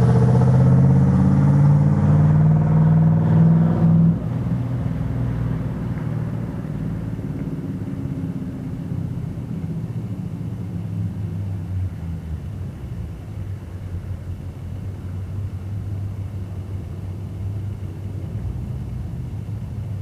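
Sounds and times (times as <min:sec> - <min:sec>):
engine exhaust rumble: 0:00.0 - 0:20.0.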